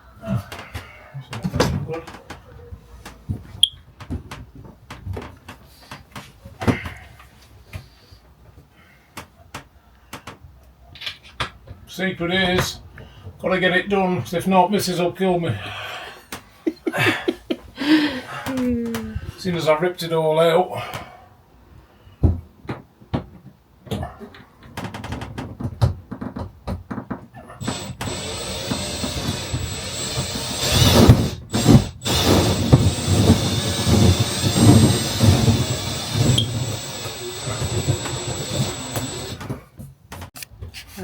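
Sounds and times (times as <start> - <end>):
knocks and clicks of handling: 0.5 - 7.9, 22.2 - 27.3
power tool motor whining: 27.6 - 39.6.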